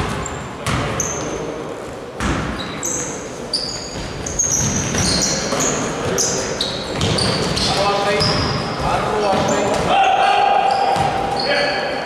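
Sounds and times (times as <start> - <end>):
basketball bouncing on gym floor: 0.0 - 1.3, 2.2 - 2.8, 3.8 - 6.2, 6.8 - 10.0, 10.7 - 11.4
sneaker squeaks: 0.1 - 1.5, 2.2 - 12.0.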